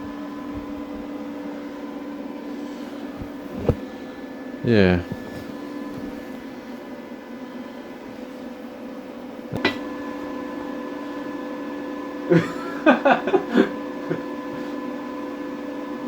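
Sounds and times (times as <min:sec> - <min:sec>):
steady hum with fixed tones: 0:00.0 - 0:16.0.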